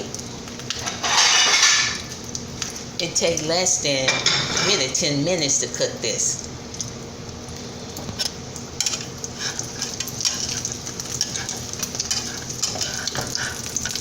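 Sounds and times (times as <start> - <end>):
omelet sizzling in oil: 0.0 - 14.0
spatula scraping pan: 8.8 - 14.0.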